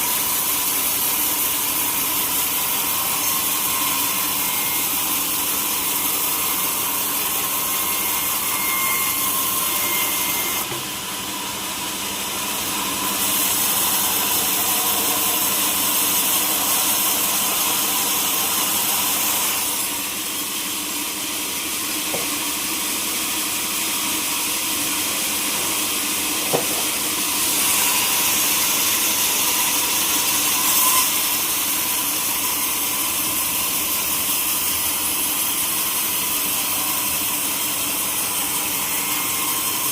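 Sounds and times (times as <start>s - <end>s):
sawmill saw hissing: 11.7s - 39.9s.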